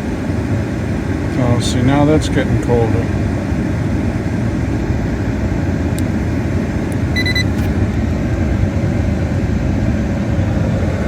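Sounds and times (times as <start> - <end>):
short high electronic beep: 7.2 - 7.5.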